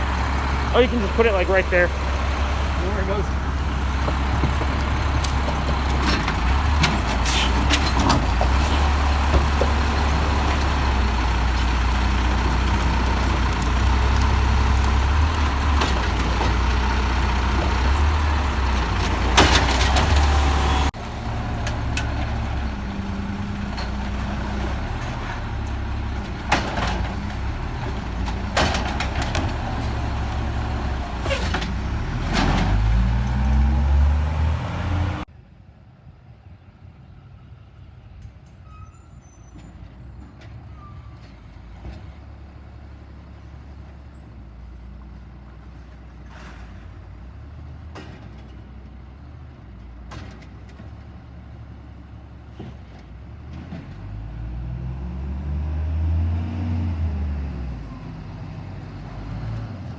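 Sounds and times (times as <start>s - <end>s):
clunks and knocks: 0.0s - 35.2s
garbage truck diesel engine: 0.0s - 59.9s.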